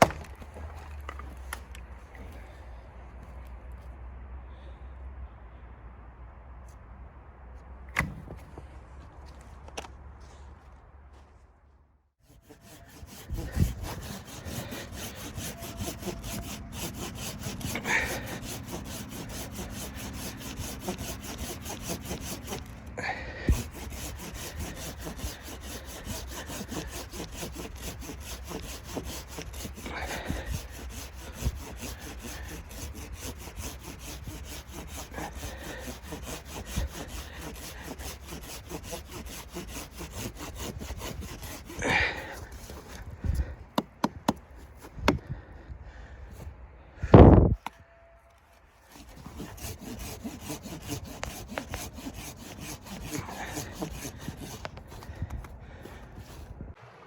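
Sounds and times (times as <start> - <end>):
wood rasping and scraping: 0.0 - 2.6, 12.2 - 45.2, 48.6 - 56.7.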